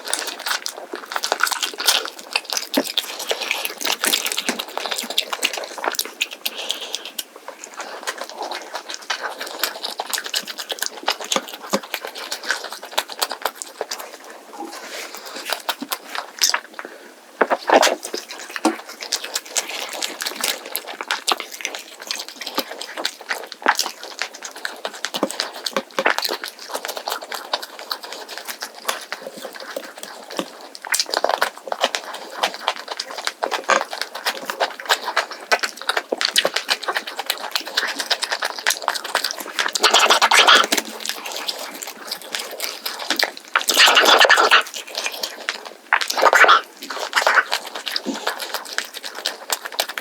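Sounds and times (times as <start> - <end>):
person chewing crunchy food: 0.0 - 50.0.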